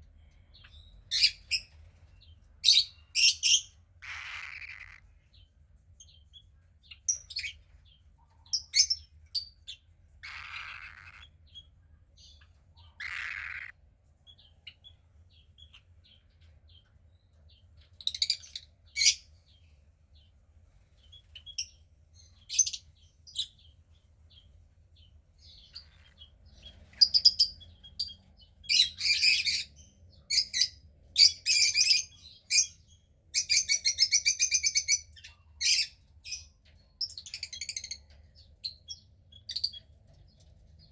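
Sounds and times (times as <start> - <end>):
cockatiel chick chirping: 2.7 - 5.0, 8.5 - 11.6, 33.4 - 36.4.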